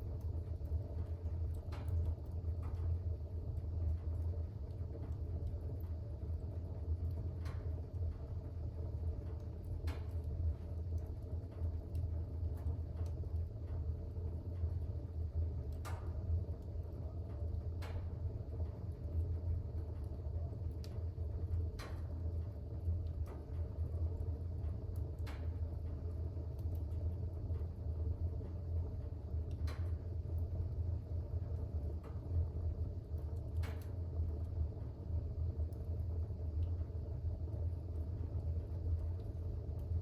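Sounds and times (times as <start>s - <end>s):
fire crackling and popping: 0.0s - 40.0s
low rumble of flames: 0.0s - 40.0s.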